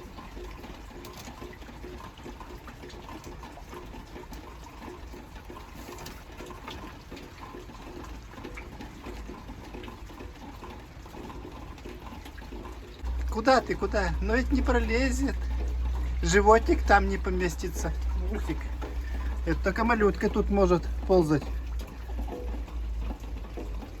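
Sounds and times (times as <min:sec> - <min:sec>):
rain falling: 0:00.0 - 0:24.0
raindrops tapping: 0:00.0 - 0:24.0.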